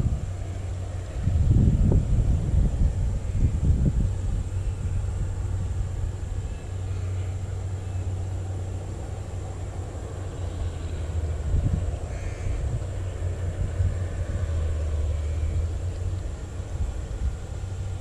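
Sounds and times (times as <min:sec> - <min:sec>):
faint high whine: 0:00.0 - 0:18.0
wind buffeting microphone: 0:00.0 - 0:18.0.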